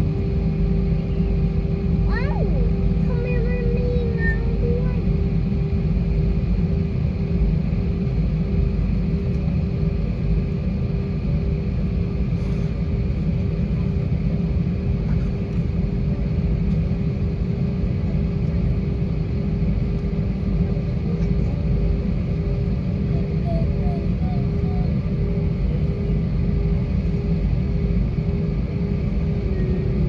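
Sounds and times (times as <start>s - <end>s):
aircraft cabin rumble: 0.0s - 30.0s.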